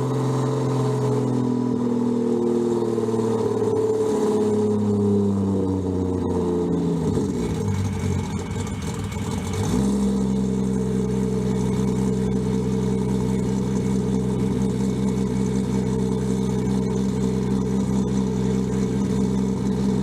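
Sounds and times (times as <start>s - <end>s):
car engine idling roughly: 6.1s - 20.0s.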